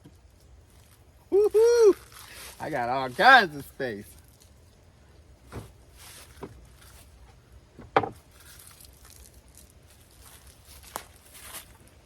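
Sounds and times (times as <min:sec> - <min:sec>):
rustling: 0:05.4 - 0:12.0
items being set down: 0:05.5 - 0:06.6, 0:07.8 - 0:08.3
light knocks: 0:07.8 - 0:08.2.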